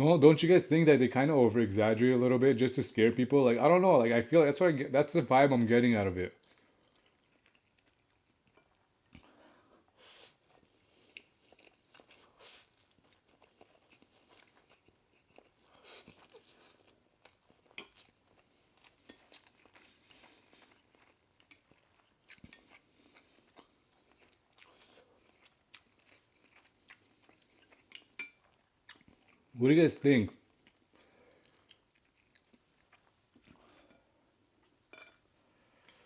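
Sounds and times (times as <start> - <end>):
person chewing: 6.3 - 29.6, 30.4 - 36.0.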